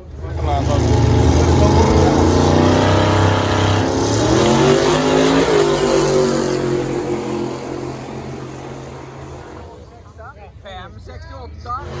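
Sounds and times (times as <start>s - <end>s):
drag racing car engine revving: 0.0s - 10.2s, 11.6s - 12.0s.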